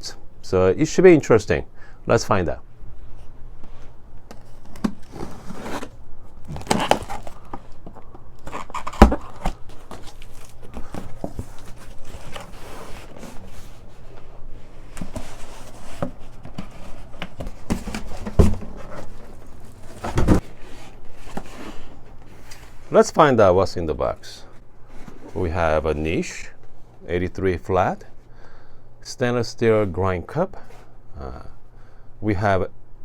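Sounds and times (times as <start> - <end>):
cardboard scraping and crinkling: 4.3 - 23.0.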